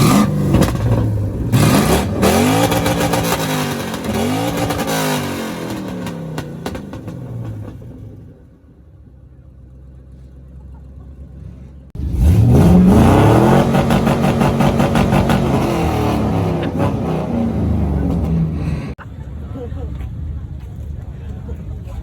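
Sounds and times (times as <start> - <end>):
vehicle engine revving: 0.0 - 8.5, 11.3 - 19.0.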